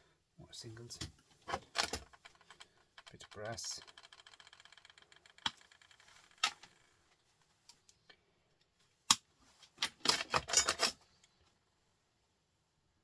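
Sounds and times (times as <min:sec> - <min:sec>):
scrap metal clicking and clinking: 0:09.7 - 0:11.1
metal pieces rattling clatter: 0:09.8 - 0:11.0.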